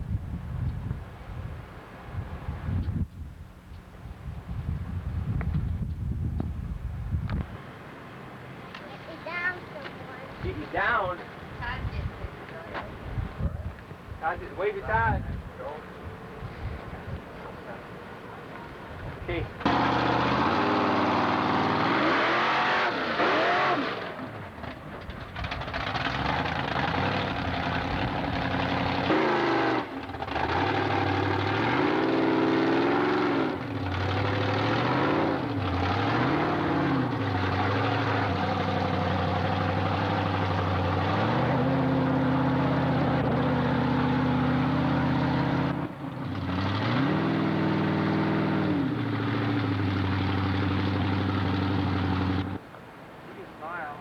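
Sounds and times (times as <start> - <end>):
monster truck engine revving: 19.6 - 52.6.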